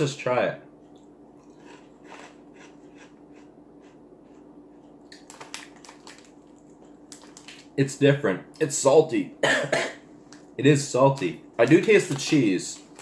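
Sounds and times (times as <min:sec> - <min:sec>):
person chewing crunchy chips: 0:00.7 - 0:07.8, 0:11.2 - 0:13.0.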